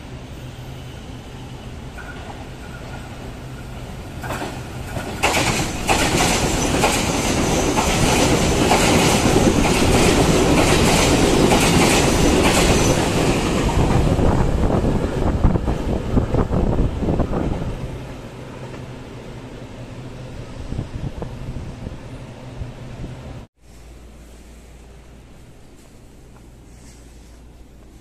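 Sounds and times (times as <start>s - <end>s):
train wheels clickety-clack: 4.2s - 14.2s.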